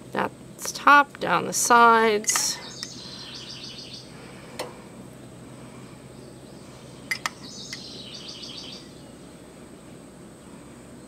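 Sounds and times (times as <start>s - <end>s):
bird trilling: 2.5s - 4.1s, 7.2s - 9.0s.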